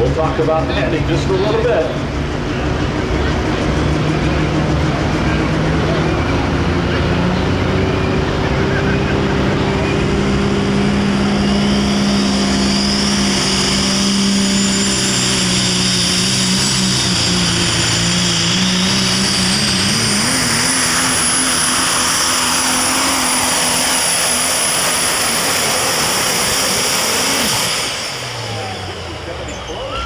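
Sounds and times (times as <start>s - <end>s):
diesel engine at full throttle: 0.0s - 30.0s
turbocharger whistle: 5.3s - 30.0s.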